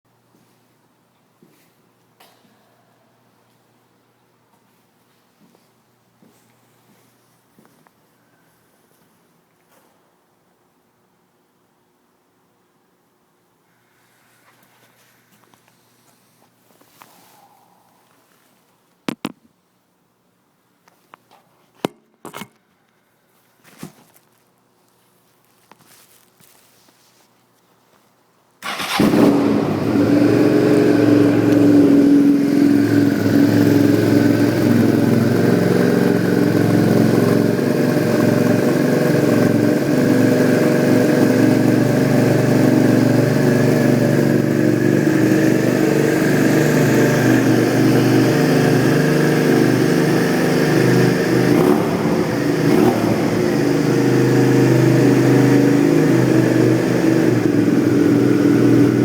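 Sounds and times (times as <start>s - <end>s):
motorcycle engine idling loudly: 28.7s - 49.0s.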